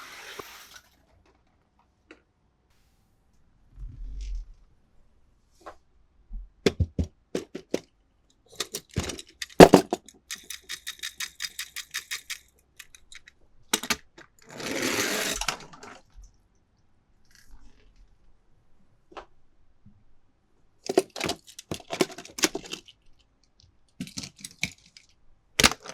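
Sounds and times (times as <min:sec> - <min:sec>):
toy cars clicking and tapping: 0:08.4 - 0:15.7, 0:20.9 - 0:25.9.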